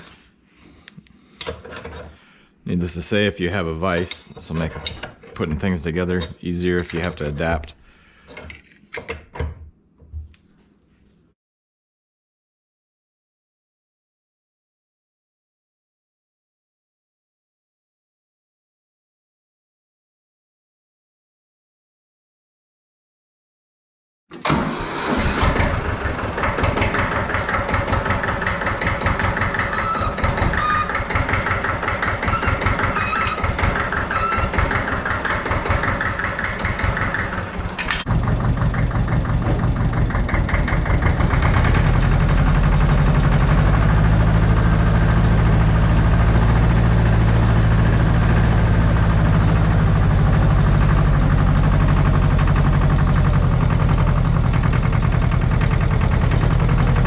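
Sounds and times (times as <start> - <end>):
tractor diesel engine running: 24.4 - 57.0.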